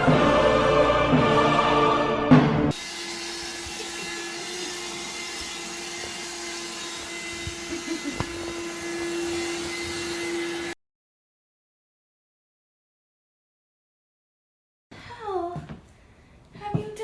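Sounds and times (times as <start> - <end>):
music: 0.0 - 2.8
motor humming: 0.0 - 10.8.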